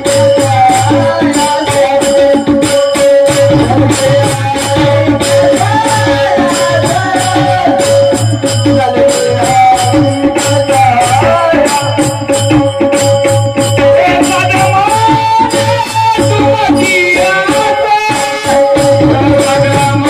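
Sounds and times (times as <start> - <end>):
jingling rattling percussion: 0.0 - 20.0
drum pulse: 2.6 - 17.6.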